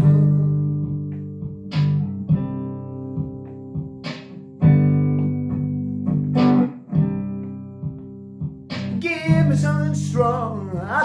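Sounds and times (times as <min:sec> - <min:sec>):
guitar strummed and picked: 0:00.0 - 0:11.0.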